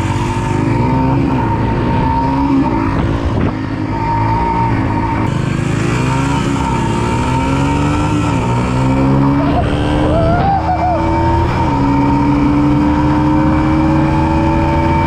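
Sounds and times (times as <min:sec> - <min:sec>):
pit bike engines revving: 0:00.0 - 0:15.0.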